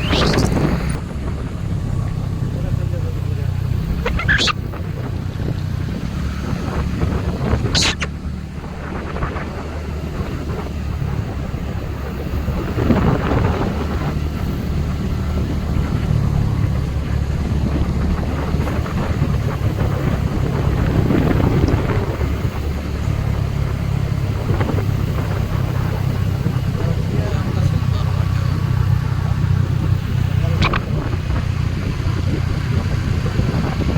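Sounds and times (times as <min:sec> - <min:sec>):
sharp click: 0:00.0 - 0:00.7, 0:07.8 - 0:08.1, 0:30.6 - 0:30.9
low engine rumble: 0:00.0 - 0:33.9
wind buffeting microphone: 0:00.0 - 0:33.9.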